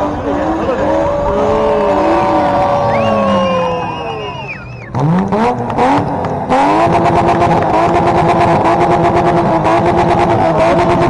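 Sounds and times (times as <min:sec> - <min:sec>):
car engine revving: 0:00.0 - 0:11.0
rasping exhaust: 0:00.0 - 0:11.0.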